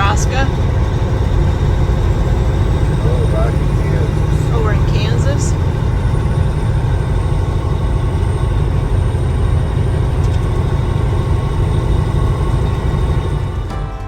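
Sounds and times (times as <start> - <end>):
road noise: 0.0 - 14.0
vehicle engine rumble: 0.0 - 14.0
music: 13.5 - 14.0.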